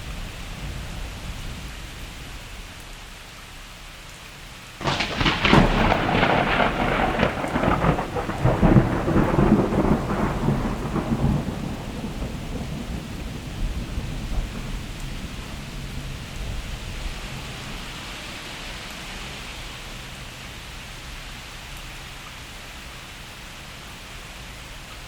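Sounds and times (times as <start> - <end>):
steady rain: 0.0 - 25.0
crackling thunderclap: 4.8 - 18.0.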